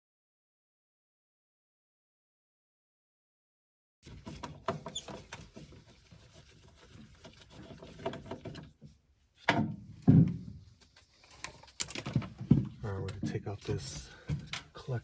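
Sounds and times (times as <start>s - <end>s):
loud thunks: 9.5s - 10.5s
tools clicking and knocking: 10.8s - 13.4s.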